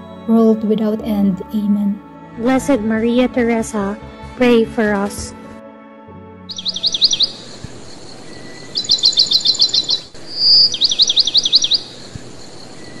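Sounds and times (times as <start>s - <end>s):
bird whistle: 6.5s - 12.1s
small bird chirping: 6.5s - 13.0s.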